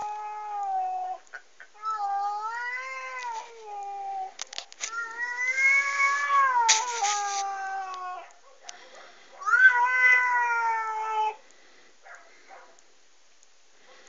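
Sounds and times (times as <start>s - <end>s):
angry cat yowling: 1.8s - 8.4s, 9.4s - 11.4s.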